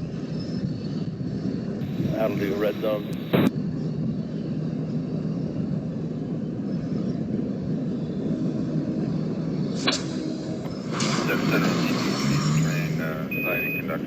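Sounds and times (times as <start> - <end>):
low engine rumble: 0.0 - 14.0
radio click: 1.8 - 3.5
radio squelch tail: 1.8 - 3.5, 9.8 - 14.0.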